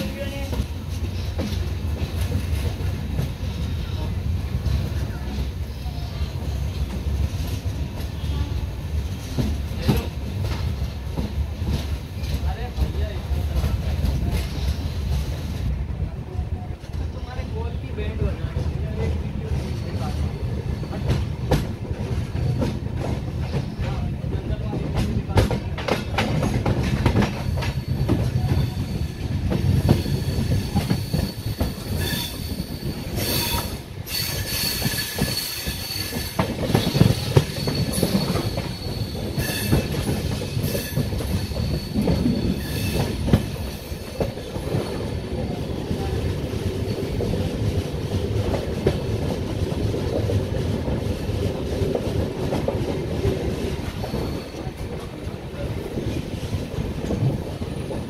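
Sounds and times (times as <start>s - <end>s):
train wheels rumbling on rail: 0.0s - 58.0s
wheels clacking over rail joints: 20.7s - 55.2s
high wheel squeal: 29.8s - 45.0s, 54.0s - 54.8s.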